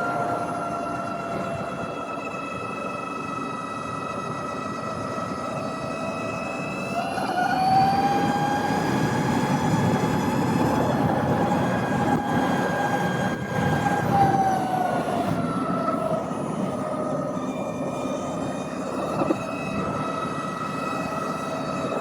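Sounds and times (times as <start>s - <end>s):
electric motorcycle motor whine: 0.0s - 22.0s.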